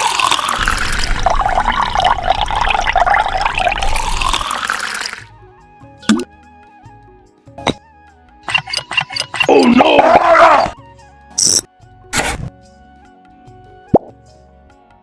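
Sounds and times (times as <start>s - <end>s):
water gushing and splashing: 0.0s - 5.3s
light background music: 5.2s - 10.0s, 10.8s - 15.0s.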